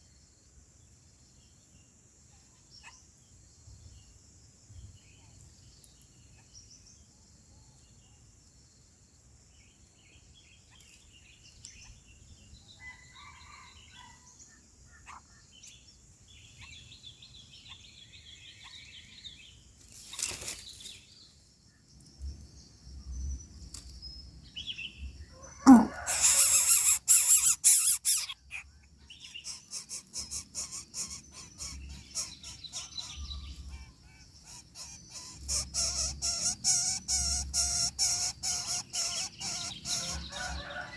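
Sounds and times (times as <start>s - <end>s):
faint bird chirps: 1.3s - 8.8s, 9.5s - 40.9s
rapid rasping bird calls: 25.6s - 40.5s.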